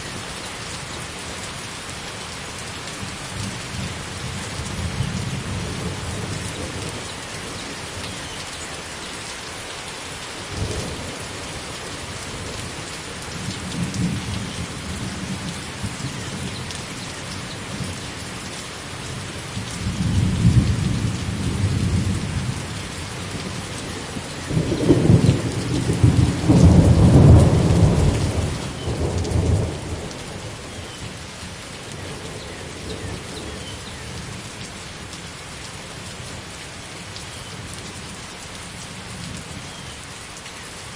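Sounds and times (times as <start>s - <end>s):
steady rain falling: 0.0s - 40.9s
thunder rumbling: 19.2s - 31.2s.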